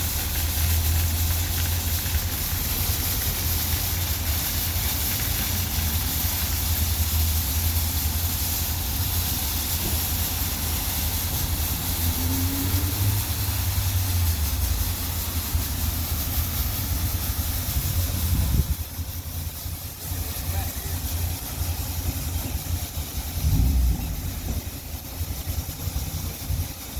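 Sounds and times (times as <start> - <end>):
car wash water jets hissing: 0.0 - 26.9
low rumble: 7.6 - 26.9.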